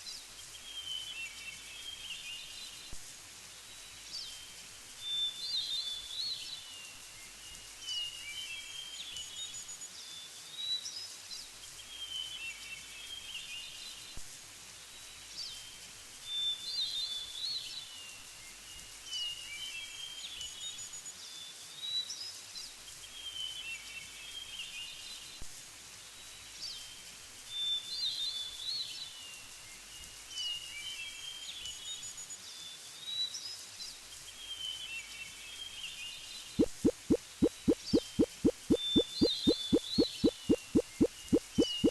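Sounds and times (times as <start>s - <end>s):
steady background hiss: 0.0s - 37.4s
songbirds chirping: 36.6s - 41.9s.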